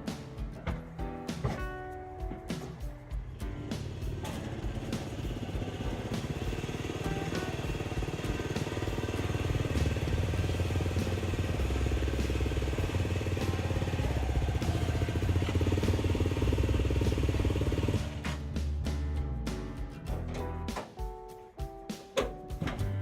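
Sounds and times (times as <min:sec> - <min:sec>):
motorcycle engine at low revs: 0:03.2 - 0:18.4.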